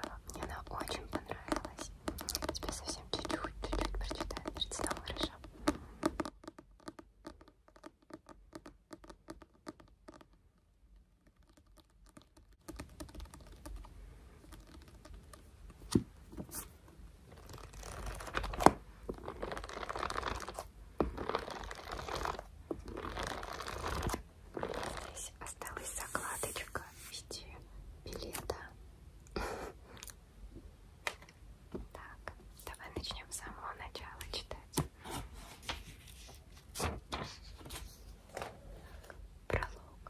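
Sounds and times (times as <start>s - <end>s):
hands rubbing and scratching: 0.0s - 10.4s, 11.2s - 27.4s, 35.1s - 38.1s
light tapping and clicking: 0.0s - 10.4s.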